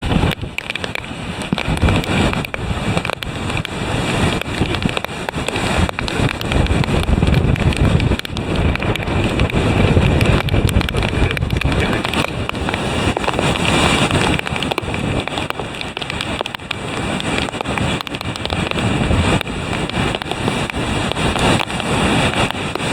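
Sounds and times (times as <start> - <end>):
surf breaking against seawall: 0.0 - 22.9
wind buffeting microphone: 0.0 - 22.9.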